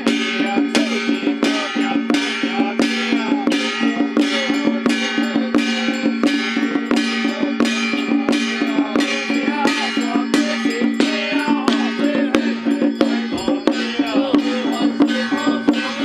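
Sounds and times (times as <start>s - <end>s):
gongs and cymbals struck: 0.0s - 16.0s.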